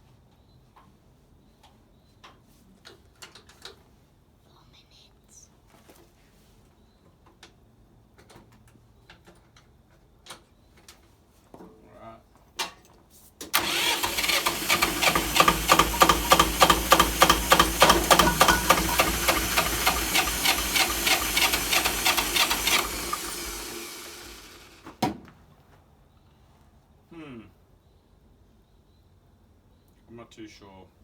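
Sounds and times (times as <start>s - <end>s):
electric starter cranking diesel engine: 13.6s - 25.0s.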